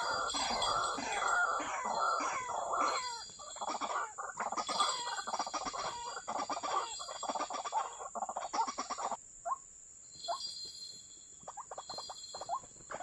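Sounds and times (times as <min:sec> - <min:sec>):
bird croaking calls: 0:00.0 - 0:09.6.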